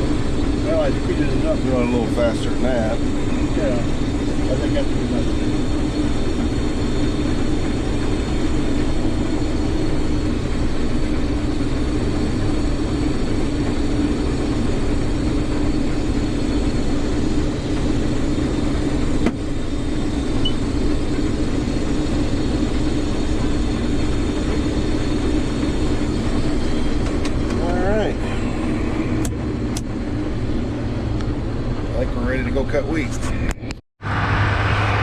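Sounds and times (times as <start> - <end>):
combine harvester running: 0.0 - 35.0.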